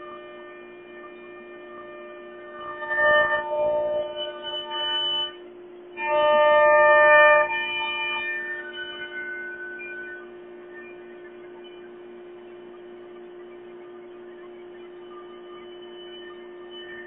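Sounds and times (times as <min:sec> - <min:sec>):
cnc router motors whining: 0:00.0 - 0:17.0
steady background hum: 0:00.0 - 0:17.0.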